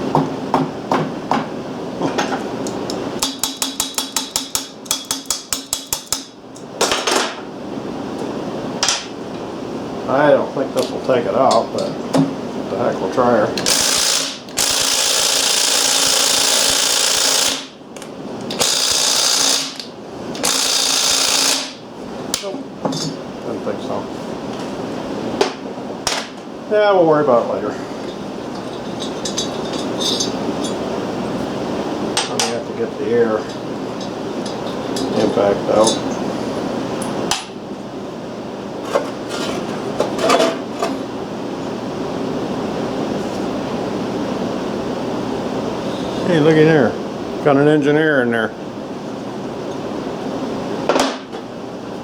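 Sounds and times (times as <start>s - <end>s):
impact wrench hammering: 3.2s - 6.3s, 13.6s - 17.7s, 18.5s - 21.8s
metallic clatter of tools: 28.6s - 30.8s.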